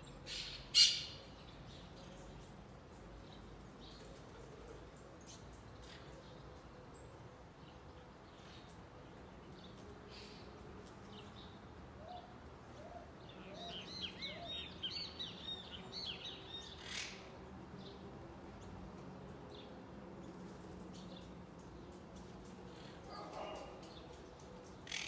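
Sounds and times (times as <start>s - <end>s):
bird chirping: 13.2s - 17.2s.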